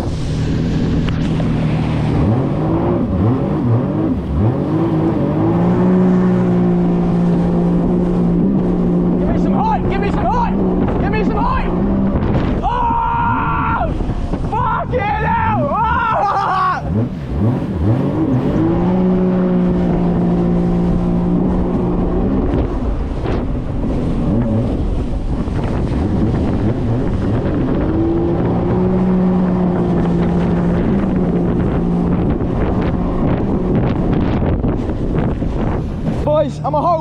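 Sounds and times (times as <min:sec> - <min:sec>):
jet ski engine at speed: 0:00.0 - 0:37.0
water rushing: 0:00.0 - 0:37.0
wind on microphone: 0:00.0 - 0:37.0.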